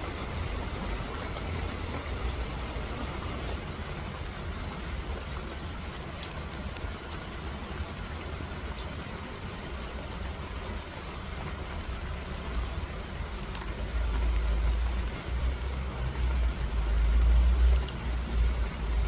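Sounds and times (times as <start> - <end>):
rain hissing: 0.0 - 19.0
faint drip ticks: 3.8 - 19.0.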